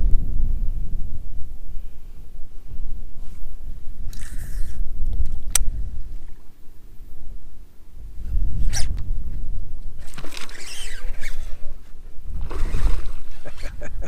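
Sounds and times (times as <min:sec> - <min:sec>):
wind buffeting microphone: 0:00.0 - 0:14.0
rustling scraping of gear: 0:10.0 - 0:11.6.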